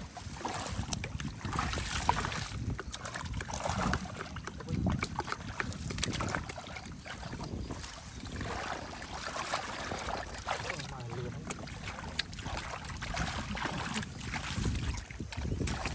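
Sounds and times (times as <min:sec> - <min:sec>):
water splashing and sloshing: 0:00.0 - 0:15.9.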